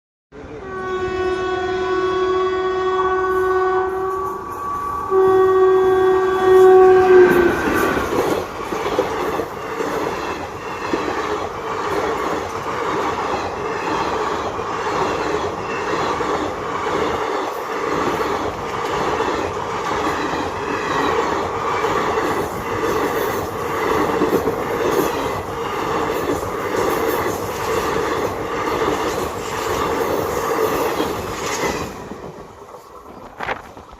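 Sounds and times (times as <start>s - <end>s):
train horn blasts: 0.4s - 8.2s
train rumbling: 2.6s - 33.9s
wheels clacking over rail joints: 7.3s - 33.9s.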